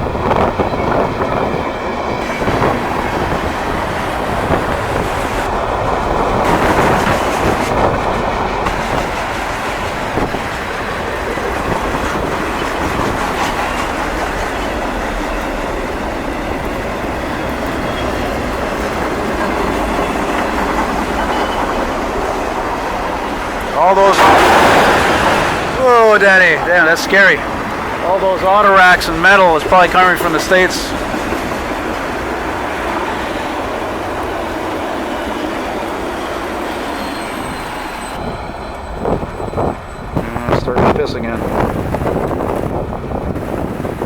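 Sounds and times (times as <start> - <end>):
freight train clattering rumble: 0.0 - 37.2, 39.0 - 44.0
wheel squeals: 17.4 - 22.2, 36.5 - 40.6.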